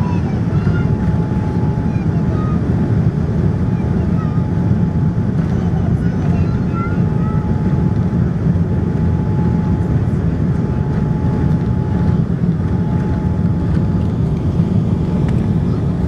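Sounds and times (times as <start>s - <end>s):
airplane low rumble: 0.0s - 16.0s
faint constant whine: 0.0s - 16.0s.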